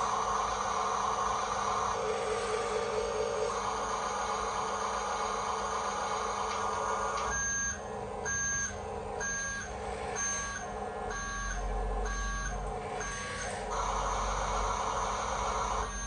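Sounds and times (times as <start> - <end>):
electronic reversing beep: 7.2 - 16.0.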